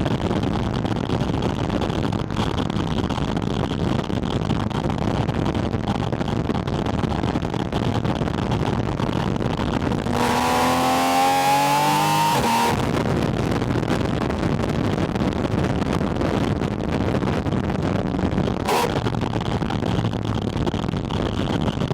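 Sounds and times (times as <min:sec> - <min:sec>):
wind rumble: 0:00.0 - 0:21.9
car engine revving: 0:09.8 - 0:13.1, 0:18.6 - 0:19.2.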